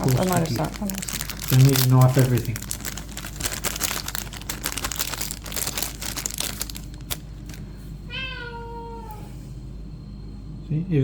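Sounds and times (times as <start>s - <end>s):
plastic packaging crinkling: 0.0s - 7.8s
cat meowing: 8.1s - 9.3s.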